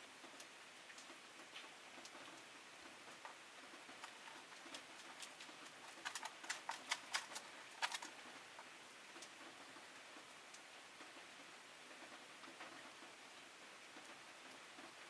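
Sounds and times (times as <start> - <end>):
lovebirds clicking and tapping: 3.9 - 8.2.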